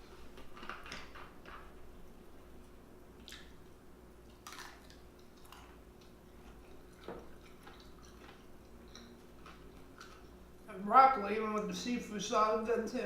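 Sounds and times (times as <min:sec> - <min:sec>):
faint steady hum: 0:00.0 - 0:13.0
wet chewing smacks: 0:03.2 - 0:10.4.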